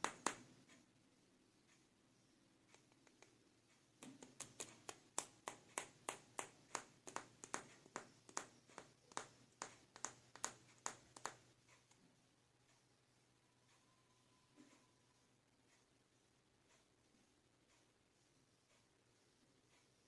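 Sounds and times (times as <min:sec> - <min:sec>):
light sharp taps: 0:04.0 - 0:11.4.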